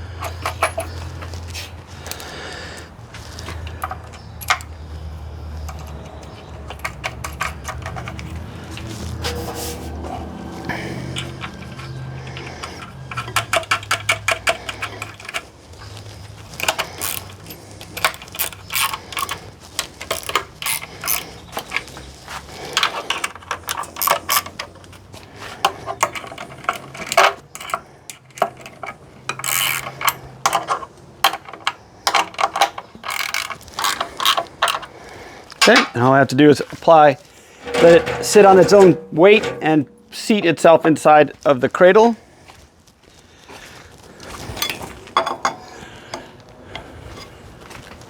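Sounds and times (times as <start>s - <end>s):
ratchet wrench clicking: 16.6s - 19.3s, 29.4s - 30.2s.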